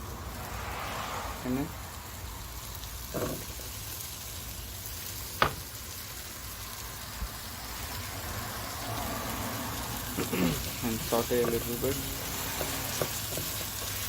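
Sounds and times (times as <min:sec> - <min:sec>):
curry sizzling in a frying pan: 0:00.0 - 0:14.0
potatoes stirred in: 0:10.0 - 0:14.0.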